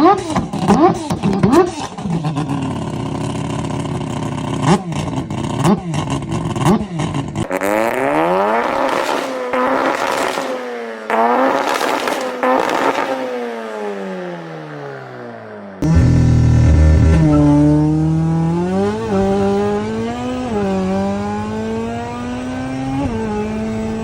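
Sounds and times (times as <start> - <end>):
car engine accelerating hard: 15.8 - 24.0.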